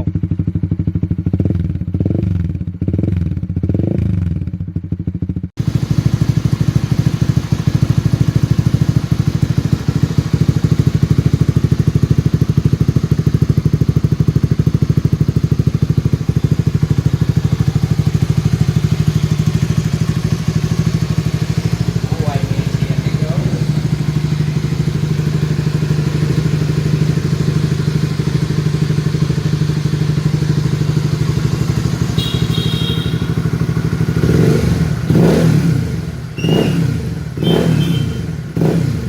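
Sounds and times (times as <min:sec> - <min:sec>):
motorcycle engine idling: 0:00.0 - 0:39.0
motorcycle engine revving: 0:00.0 - 0:39.0.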